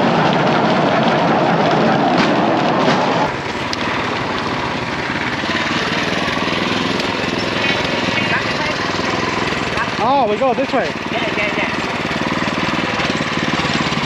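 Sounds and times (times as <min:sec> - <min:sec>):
small motor running: 0:00.0 - 0:14.0.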